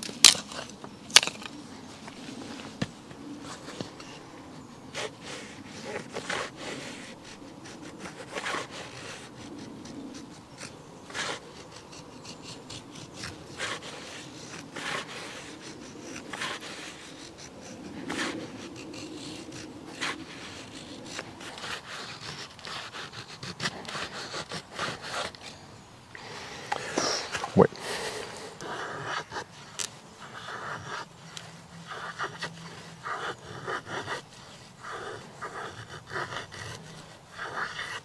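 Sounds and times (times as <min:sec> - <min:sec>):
blade scraping wood: 0:05.0 - 0:25.6.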